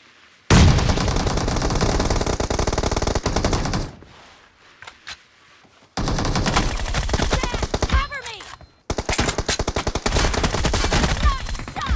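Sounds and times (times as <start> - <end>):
rapid automatic gunfire: 0.6 - 3.9, 6.0 - 8.1, 8.9 - 11.9.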